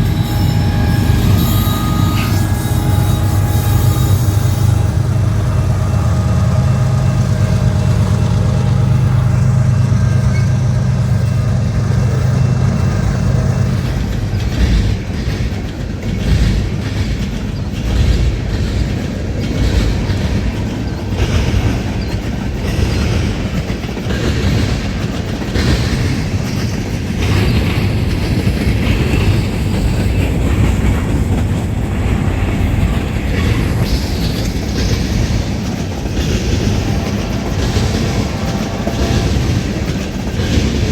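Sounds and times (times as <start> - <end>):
diesel locomotive engine drone: 0.0 - 40.9
train wheels clattering on rails: 0.0 - 40.9.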